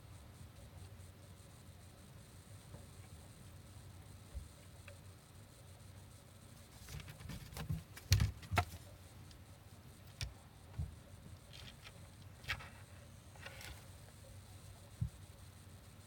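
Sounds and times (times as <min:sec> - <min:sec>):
cats playing with soft knocks: 0:06.7 - 0:09.0.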